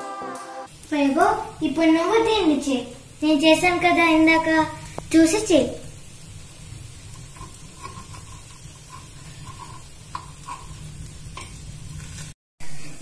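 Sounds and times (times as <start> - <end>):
faint sizzling: 0.2 - 12.4
metal taps and scrapes on a pan: 7.1 - 12.2.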